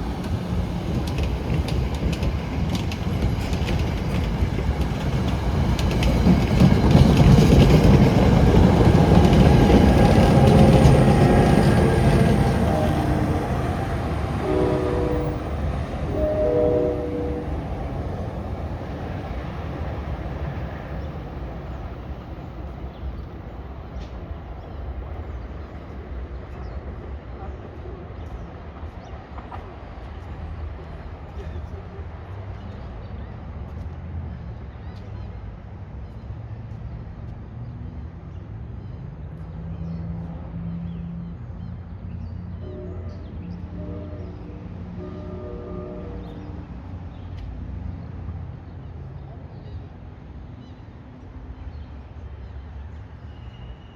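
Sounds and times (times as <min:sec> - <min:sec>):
train rumble: 0:00.0 - 0:53.9
train horn blasts: 0:09.7 - 0:18.2, 0:42.6 - 0:46.8.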